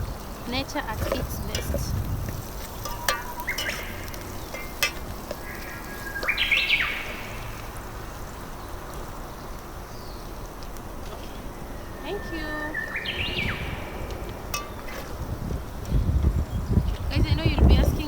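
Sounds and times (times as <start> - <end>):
faint outdoor background: 0.0 - 18.0
bird chirping: 2.6 - 10.4, 11.2 - 14.9.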